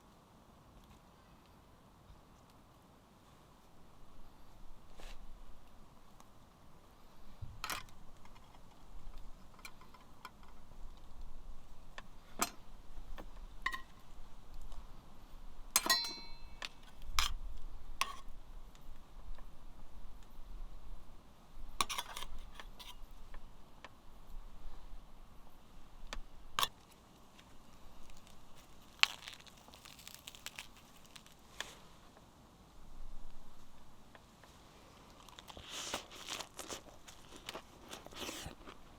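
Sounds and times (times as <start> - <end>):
ringing clink: 15.8 - 16.6.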